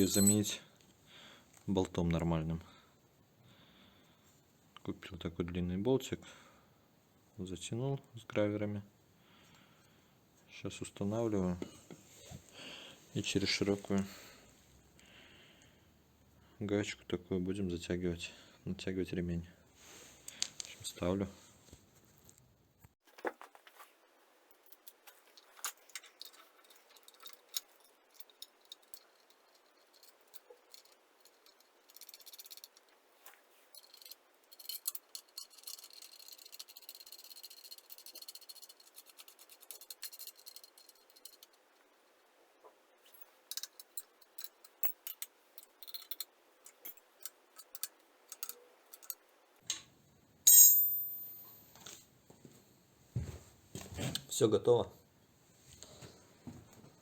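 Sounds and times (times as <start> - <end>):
metallic tool clicks and rattles: 0.0 - 0.5, 24.6 - 33.0, 33.7 - 41.6, 43.5 - 49.9
sharp ringing sound: 0.0 - 0.6, 50.5 - 51.8.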